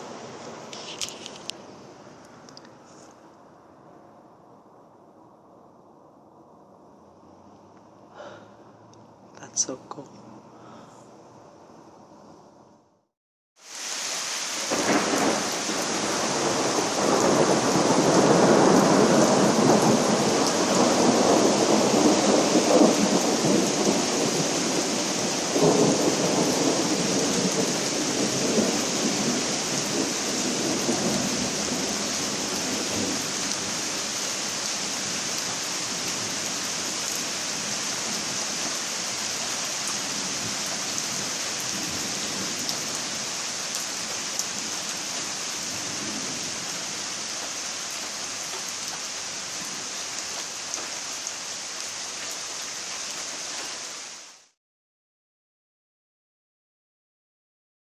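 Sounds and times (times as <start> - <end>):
rain hissing: 0.0 - 3.3, 13.6 - 54.6
thunder rumbling: 14.7 - 34.0.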